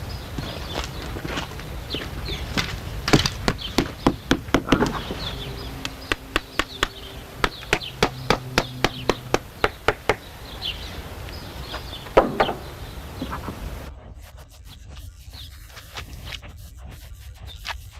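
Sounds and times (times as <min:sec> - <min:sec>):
faint bird chirps: 0:00.0 - 0:13.9
sharp knocks: 0:02.5 - 0:10.4, 0:11.7 - 0:13.7.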